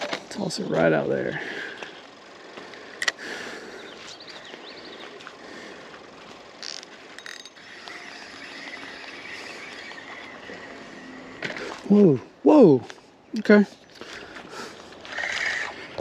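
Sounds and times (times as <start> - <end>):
fishing reel clicks: 6.6 - 10.5
fishing reel gears whirring: 6.6 - 12.0, 15.0 - 16.0.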